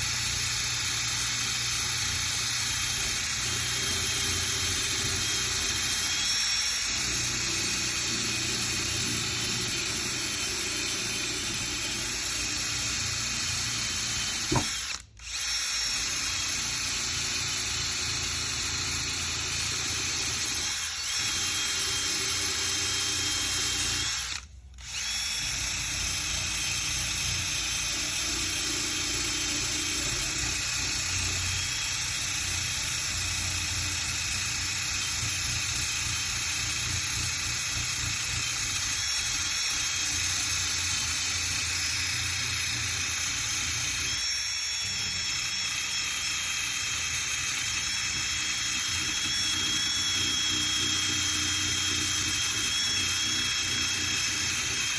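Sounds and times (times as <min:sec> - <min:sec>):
power sander whining on metal: 0:00.0 - 0:32.4, 0:34.8 - 0:54.9.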